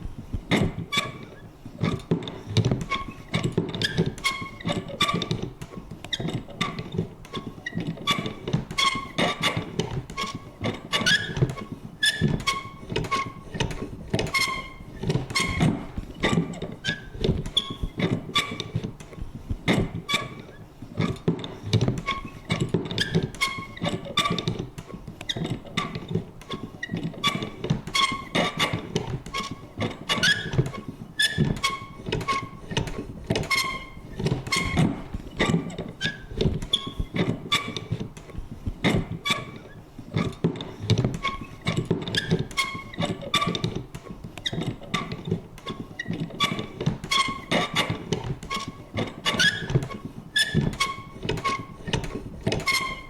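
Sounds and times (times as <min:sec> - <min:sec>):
mechanism creaking and squeaking: 0:00.5 - 0:53.0
paper punch clicks and thunks: 0:21.0 - 0:53.0.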